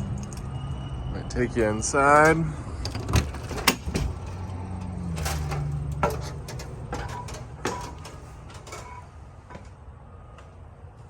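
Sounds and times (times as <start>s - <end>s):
footsteps: 5.1s - 9.8s.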